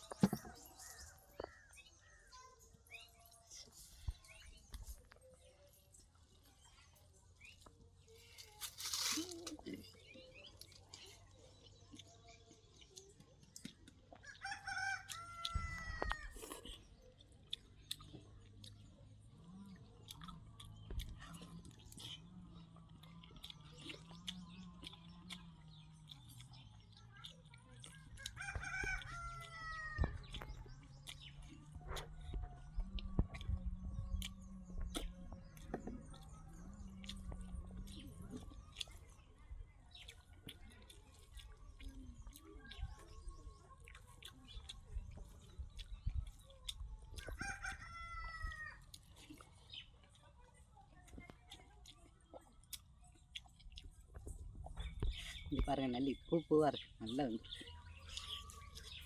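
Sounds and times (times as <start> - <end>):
person chewing with mouth smacks: 7.5 - 14.4, 15.0 - 39.2, 39.9 - 47.4, 48.4 - 50.3, 50.9 - 55.7, 57.4 - 59.0
food being handled: 8.2 - 10.1.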